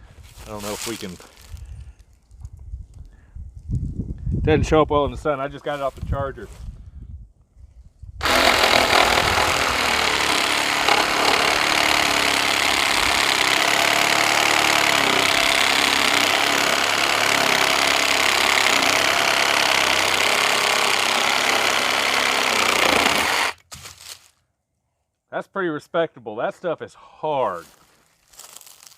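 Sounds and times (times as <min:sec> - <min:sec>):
reciprocating saw cutting wood: 0:08.2 - 0:23.6.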